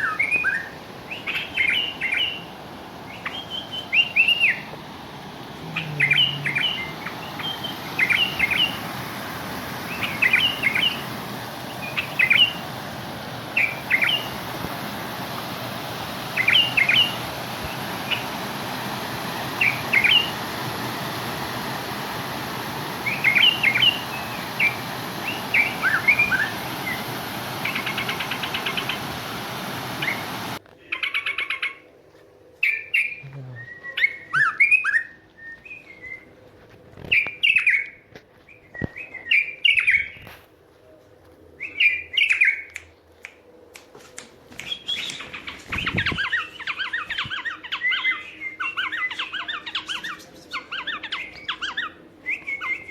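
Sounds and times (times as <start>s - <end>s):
steady hiss: 0.0s - 30.6s
songbirds chirping: 0.0s - 43.0s, 44.5s - 52.9s.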